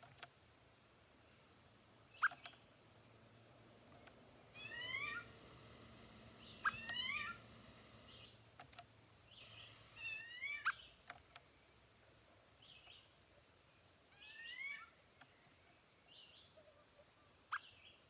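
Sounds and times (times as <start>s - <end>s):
bird mewing calls: 4.6s - 8.3s.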